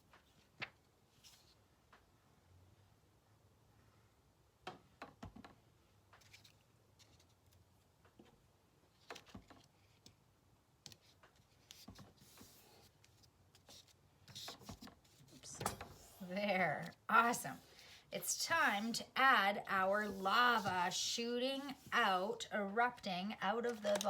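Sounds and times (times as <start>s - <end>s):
paper taps and rustles: 9.0s - 10.2s, 10.8s - 16.0s, 23.7s - 24.0s.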